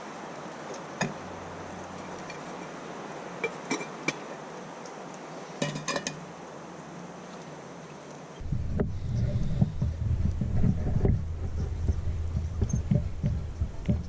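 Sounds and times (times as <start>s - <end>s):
steady low hiss: 0.0s - 14.0s.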